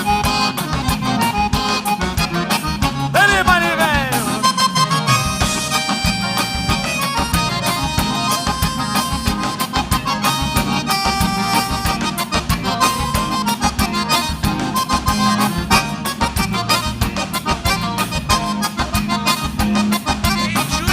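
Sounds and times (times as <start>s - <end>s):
accordion melody: 0.0s - 20.9s
bass: 0.0s - 20.9s
fast steady drum beat: 3.1s - 4.9s.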